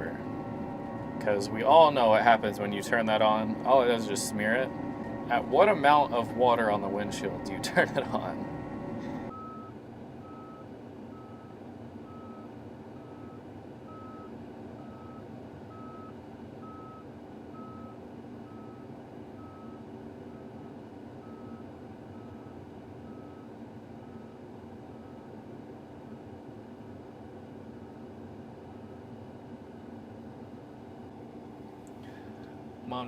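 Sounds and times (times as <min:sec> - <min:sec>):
backup alarm beeping: 0:00.0 - 0:11.5
engine hum: 0:00.0 - 0:33.0.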